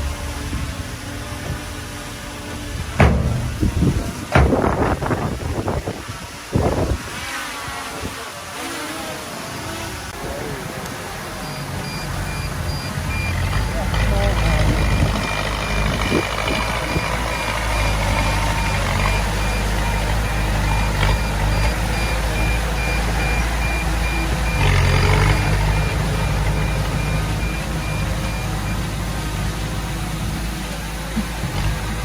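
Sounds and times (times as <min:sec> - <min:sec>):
heavy diesel machinery running: 0:00.0 - 0:07.0, 0:09.3 - 0:32.0
reversing alarm beeping: 0:11.2 - 0:29.5.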